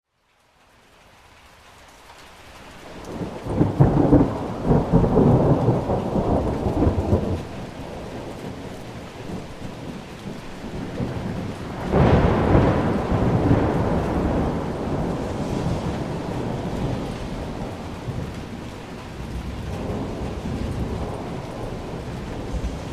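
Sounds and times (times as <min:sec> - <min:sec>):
rain falling: 0:00.0 - 0:22.9
thunder rumbling: 0:02.9 - 0:22.9.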